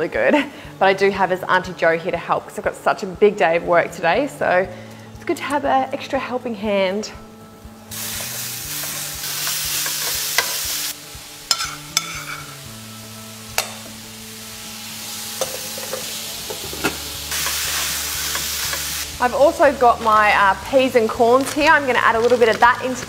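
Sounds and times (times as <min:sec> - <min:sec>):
meat and onion sizzling in a pan: 0:07.4 - 0:23.0
utensils clicking against a pan: 0:08.2 - 0:10.6, 0:11.5 - 0:12.6, 0:13.5 - 0:14.0, 0:15.4 - 0:19.0.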